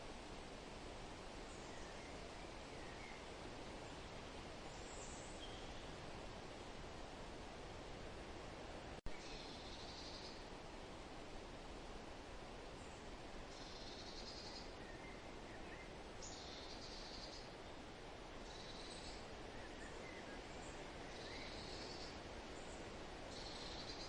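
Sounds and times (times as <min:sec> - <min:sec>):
wind rustling foliage: 0:00.0 - 0:24.0
faint bird chirps: 0:04.7 - 0:06.0, 0:09.1 - 0:10.5, 0:12.8 - 0:17.8, 0:18.4 - 0:24.0.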